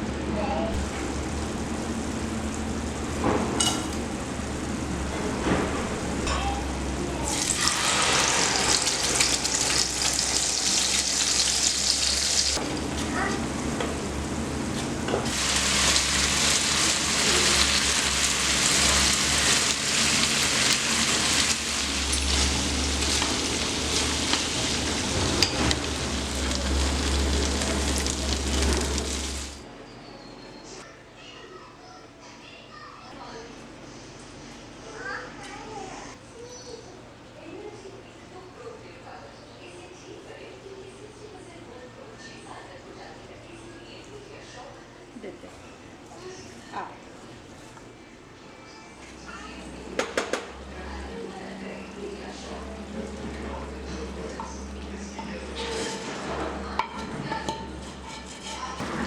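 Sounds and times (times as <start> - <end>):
food sizzling in a hot pan: 7.2 - 12.6, 15.3 - 29.6.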